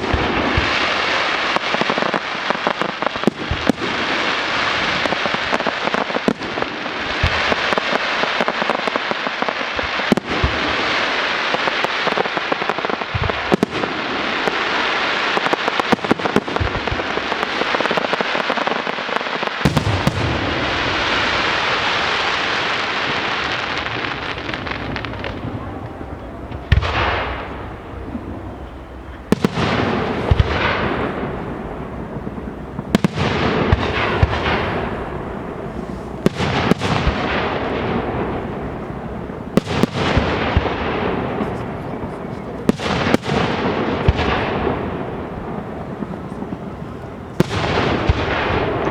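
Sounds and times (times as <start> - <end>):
firework crackle: 0.0 - 48.9
firework shells bursting: 19.4 - 41.5.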